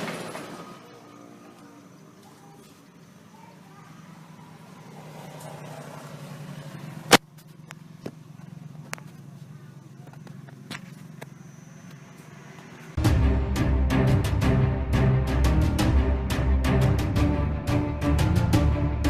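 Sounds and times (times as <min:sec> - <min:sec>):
engine idling: 0:00.0 - 0:19.0
music: 0:13.0 - 0:19.0.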